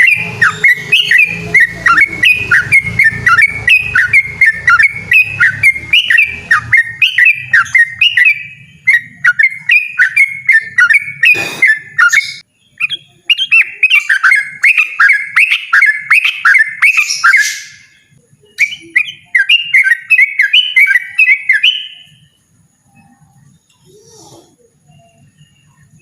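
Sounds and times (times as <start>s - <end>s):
bird singing whistled notes: 0.0s - 26.0s.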